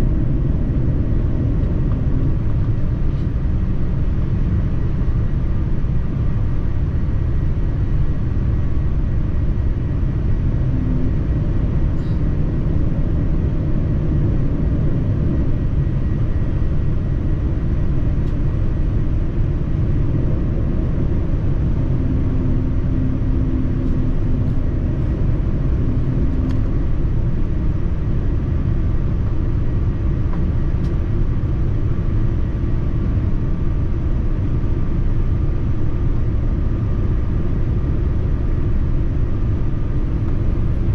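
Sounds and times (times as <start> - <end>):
airliner cabin rumble: 0.0 - 40.9
faint high hum: 7.7 - 29.8.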